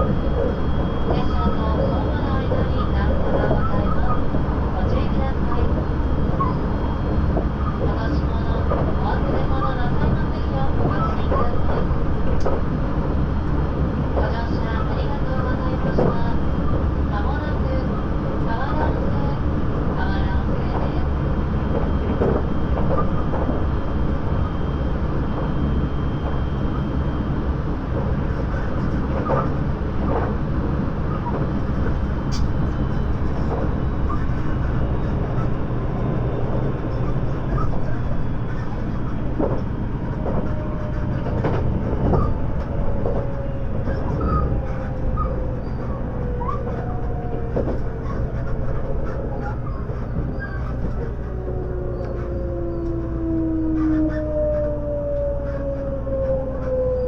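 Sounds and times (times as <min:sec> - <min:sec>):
train wheels rumbling on rail: 0:00.0 - 0:57.0
track clicks and knocks: 0:31.2 - 0:53.1.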